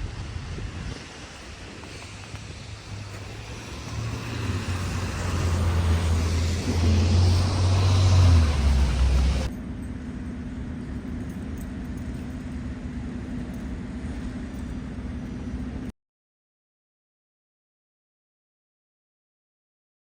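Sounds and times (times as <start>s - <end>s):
vehicle engine rumble: 0.0s - 15.9s.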